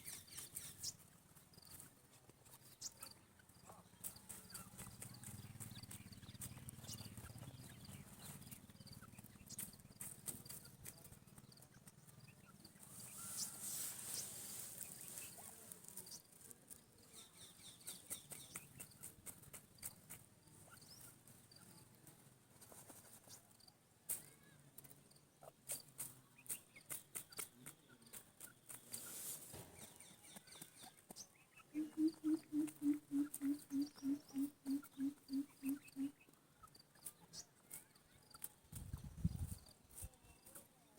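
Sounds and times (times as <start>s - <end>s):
francolin calling: 31.8s - 36.2s.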